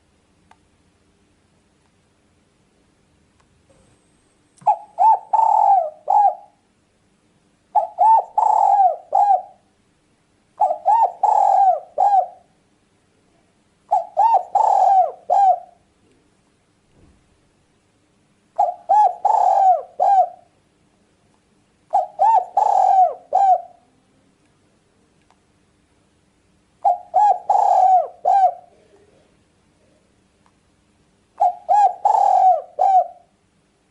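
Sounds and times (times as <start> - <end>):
dove cooing: 4.6 - 6.6, 7.7 - 9.7, 10.6 - 12.5, 13.9 - 15.8, 18.6 - 20.5, 21.9 - 24.1, 26.8 - 30.0, 31.4 - 33.4.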